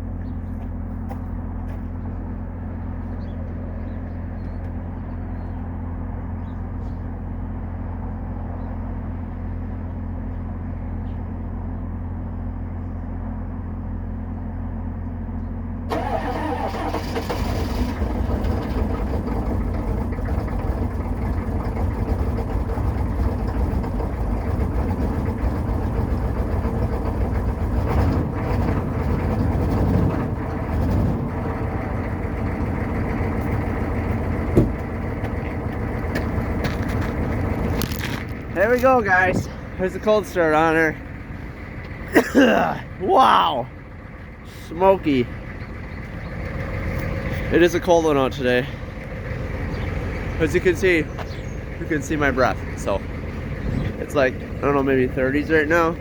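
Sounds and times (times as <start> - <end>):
diesel engine cranking and starting: 0.0 - 56.0
diesel engine idling unevenly: 0.0 - 56.0
steady low hum: 18.0 - 56.0.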